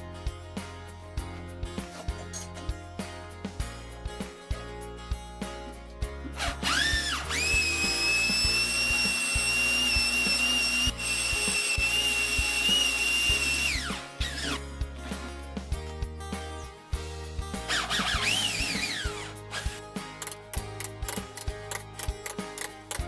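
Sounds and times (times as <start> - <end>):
electric drill motor whining: 6.4 - 14.6, 17.7 - 19.7.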